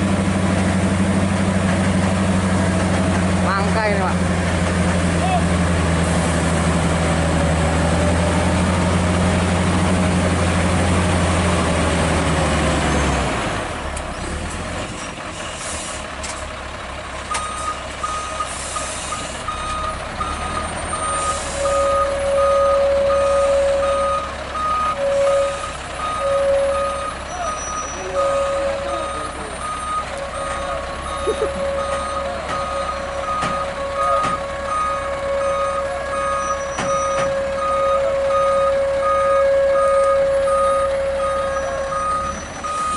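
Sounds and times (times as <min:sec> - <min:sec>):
truck diesel engine running: 0:00.0 - 0:42.9
reversing alarm beeping: 0:17.3 - 0:42.9
lower alarm tone: 0:19.8 - 0:27.2, 0:27.8 - 0:42.9.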